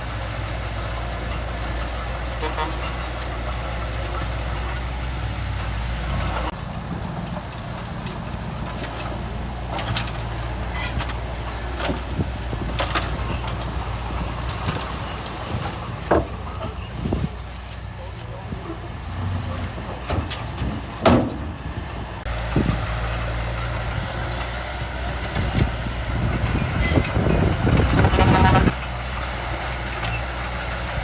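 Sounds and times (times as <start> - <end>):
diesel engine running: 0.0 - 31.0
metallic clanks and knocks: 19.6 - 21.7.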